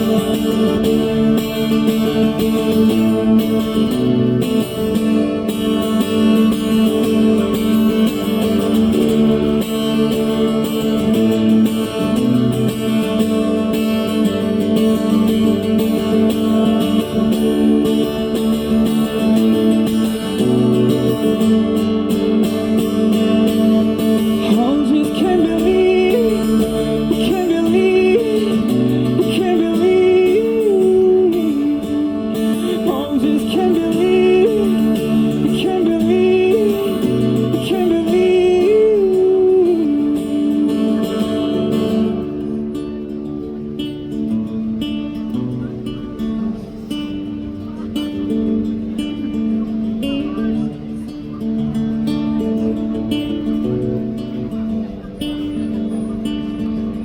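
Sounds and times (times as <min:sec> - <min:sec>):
guitar chord accompaniment: 0:00.0 - 0:57.0
person singing wordless melody: 0:24.3 - 0:42.2.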